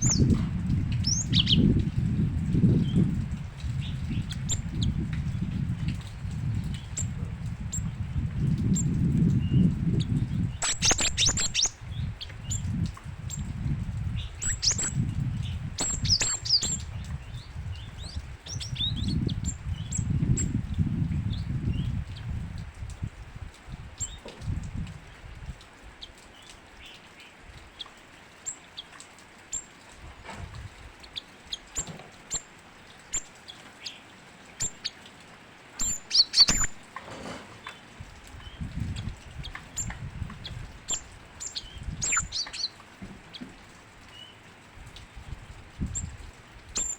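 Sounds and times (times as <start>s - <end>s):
bird chirping: 0.0s - 0.4s, 1.0s - 1.8s, 8.7s - 12.7s, 14.1s - 20.0s, 31.1s - 35.1s, 35.8s - 36.8s, 38.4s - 43.5s
short bird chirps: 10.6s - 11.8s, 35.8s - 36.7s.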